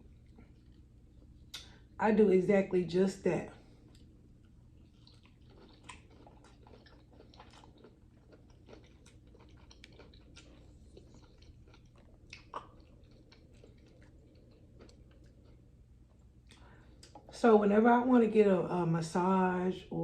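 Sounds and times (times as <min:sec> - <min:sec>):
person chewing food: 0:00.0 - 0:02.0, 0:03.6 - 0:17.3.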